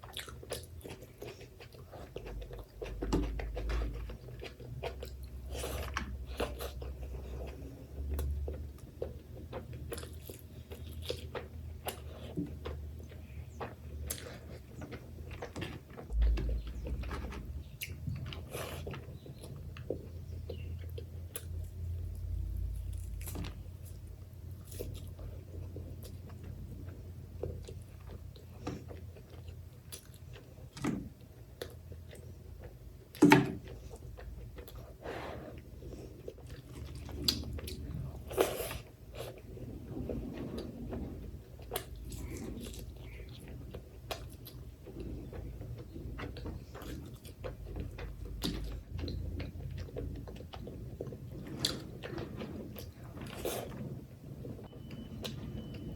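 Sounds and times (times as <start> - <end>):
person chewing food: 0.0 - 55.9.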